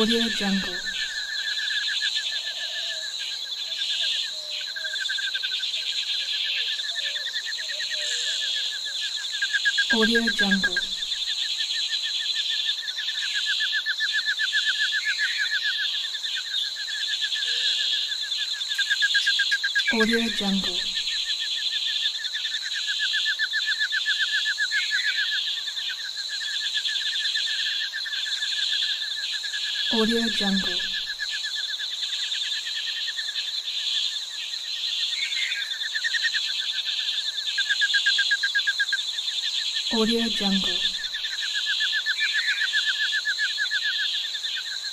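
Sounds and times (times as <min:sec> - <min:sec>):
rapid repeated chirps: 0:00.0 - 0:01.2, 0:09.9 - 0:11.3, 0:19.9 - 0:21.3, 0:29.9 - 0:31.2, 0:39.9 - 0:41.4
insects chirping: 0:00.0 - 0:44.9.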